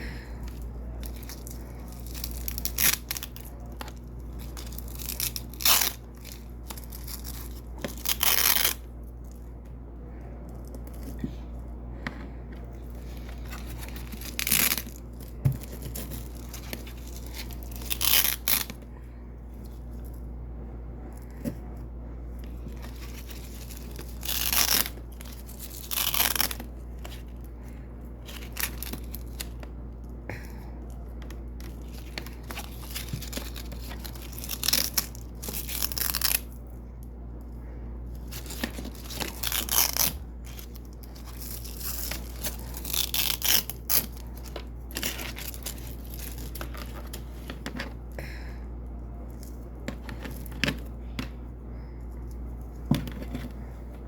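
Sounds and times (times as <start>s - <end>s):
velcro ripping: 4.6s - 8.8s, 15.9s - 18.8s, 22.8s - 26.7s, 38.3s - 44.4s.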